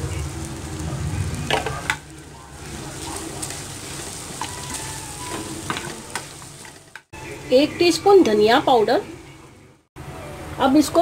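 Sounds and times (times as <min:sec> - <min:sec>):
meat sizzling in oil: 0:00.0 - 0:08.7.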